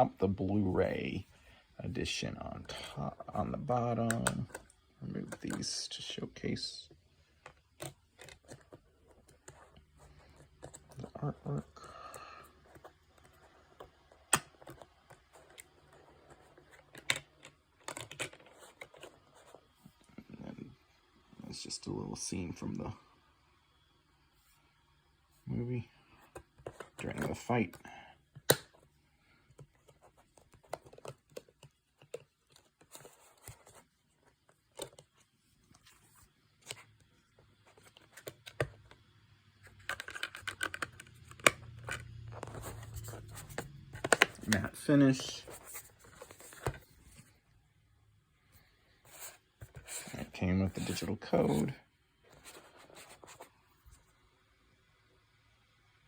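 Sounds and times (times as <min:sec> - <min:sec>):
paper and plastic rustling: 0:39.6 - 0:47.4, 0:49.0 - 0:53.9
disc case clicking: 0:43.4 - 0:44.7.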